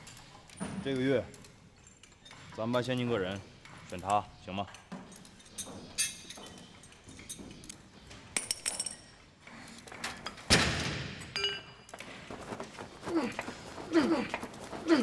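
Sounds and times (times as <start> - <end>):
small clinks and knocks: 0.0 - 10.5.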